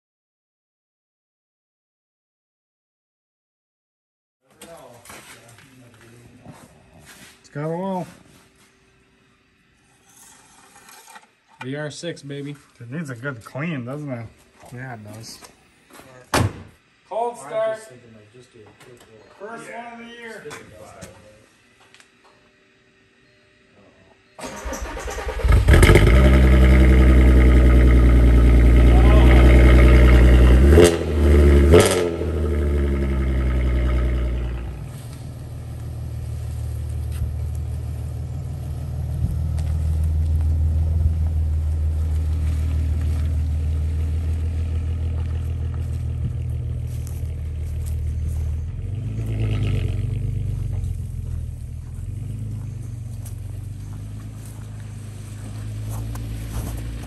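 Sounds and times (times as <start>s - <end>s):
car engine revving: 24.5s - 57.0s.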